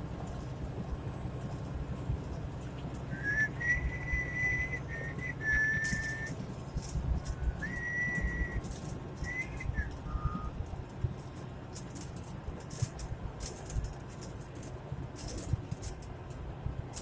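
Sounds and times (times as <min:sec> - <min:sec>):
truck cab road rumble: 0:00.0 - 0:17.0
person whistling: 0:03.1 - 0:06.3, 0:07.4 - 0:10.6.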